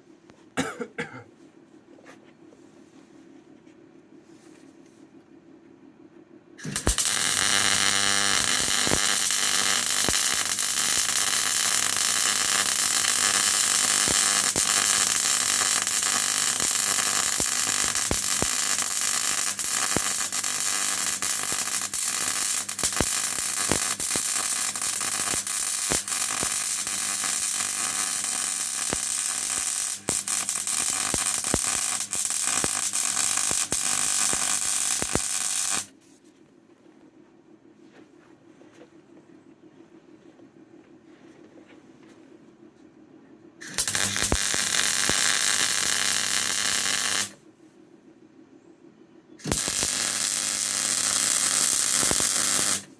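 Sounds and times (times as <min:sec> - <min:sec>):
arc welding crackling hiss: 0:06.6 - 0:35.9, 0:43.6 - 0:47.4, 0:49.4 - 0:52.9.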